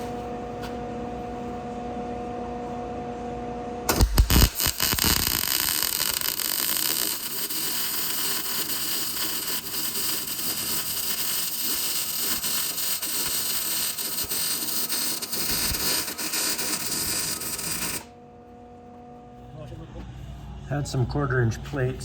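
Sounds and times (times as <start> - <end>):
welding arc crackling hiss: 3.9 - 18.1.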